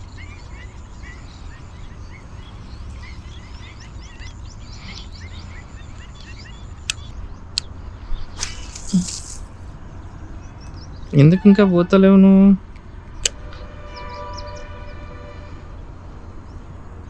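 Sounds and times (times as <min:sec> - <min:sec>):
small birds chirping: 0:00.0 - 0:17.0
sharp clicks: 0:08.3 - 0:09.4, 0:12.7 - 0:13.6
short hissing burst: 0:08.4 - 0:09.5.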